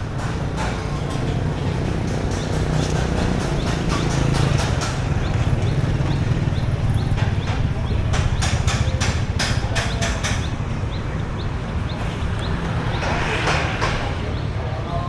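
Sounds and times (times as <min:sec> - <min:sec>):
vehicle rushing past: 0:11.6 - 0:15.0.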